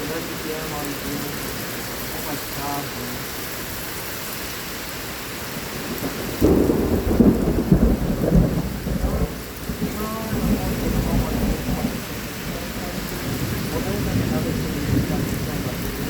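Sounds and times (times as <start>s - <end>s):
heavy rain: 0.0s - 16.0s
thunder rumbling: 5.6s - 16.0s.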